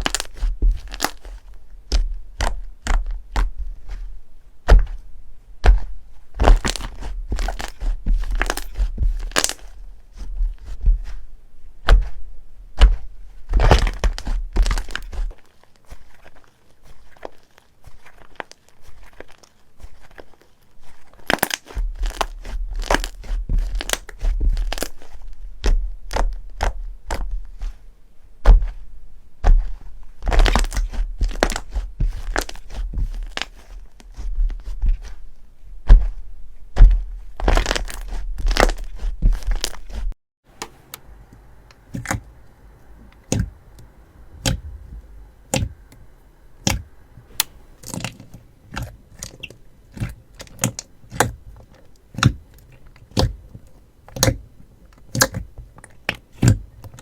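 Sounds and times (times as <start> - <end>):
slime crackling and popping: 0.0 - 4.0, 5.6 - 9.8, 12.8 - 27.7, 29.4 - 35.2, 36.8 - 40.1, 46.6 - 53.5, 54.1 - 57.0
low rumble: 41.0 - 47.3.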